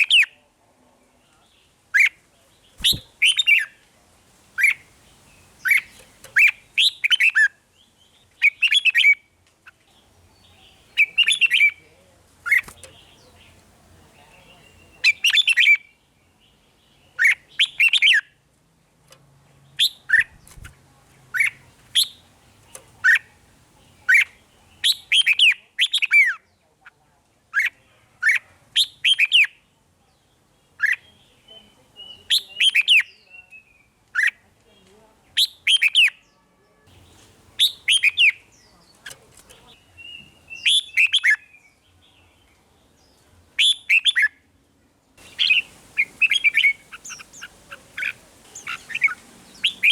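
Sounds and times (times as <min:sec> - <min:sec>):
bird singing whistled phrases: 0:02.8 - 0:03.7, 0:11.0 - 0:11.8, 0:17.2 - 0:18.3, 0:24.1 - 0:26.4, 0:28.8 - 0:29.6, 0:32.0 - 0:34.3, 0:35.4 - 0:36.2, 0:37.6 - 0:38.4, 0:40.0 - 0:41.7, 0:43.6 - 0:44.4, 0:45.2 - 0:49.9.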